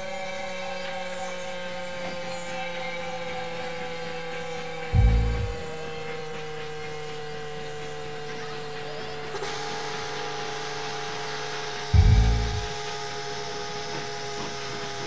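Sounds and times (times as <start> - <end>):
mechanical whine of held tones: 0.0 - 15.0
deep low boom: 5.0 - 5.6, 12.0 - 12.7.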